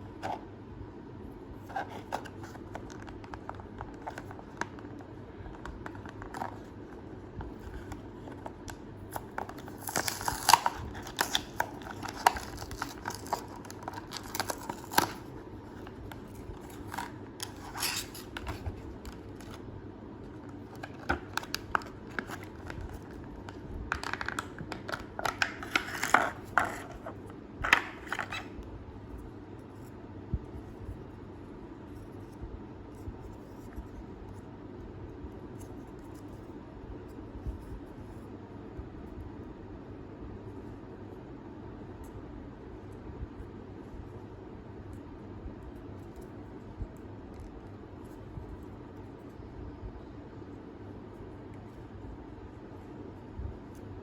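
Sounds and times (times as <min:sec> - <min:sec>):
steady low hum: 0:00.0 - 0:54.0
packaging crinkling and tearing: 0:02.0 - 0:06.8, 0:07.5 - 0:19.6, 0:20.2 - 0:28.5.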